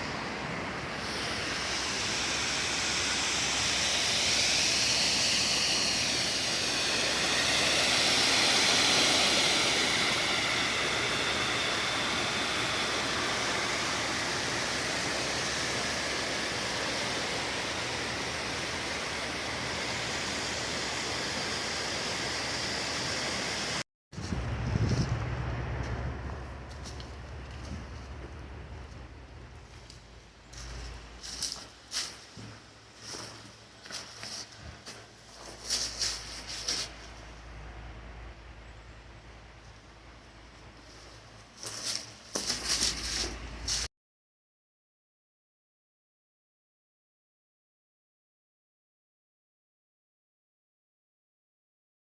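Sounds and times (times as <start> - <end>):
waterfall rushing: 0.0 - 23.8.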